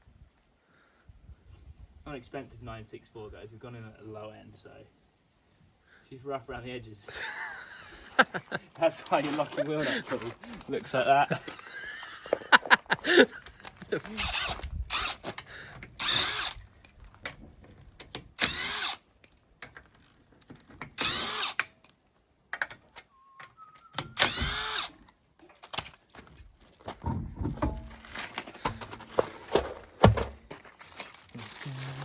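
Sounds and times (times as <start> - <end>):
power tool spinning wheel bolts: 14.1 - 16.7, 18.3 - 19.1, 20.8 - 21.9, 24.0 - 25.0
tools clunking: 25.4 - 30.8.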